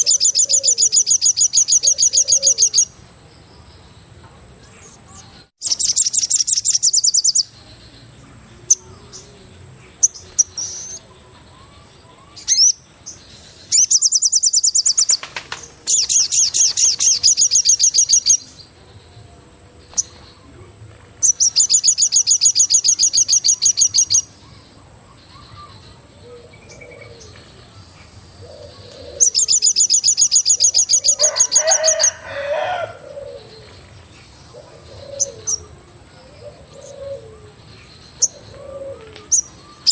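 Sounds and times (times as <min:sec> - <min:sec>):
bird trilling: 0:00.0 - 0:02.9, 0:13.7 - 0:18.5, 0:28.4 - 0:33.7, 0:34.5 - 0:37.5, 0:38.2 - 0:39.9.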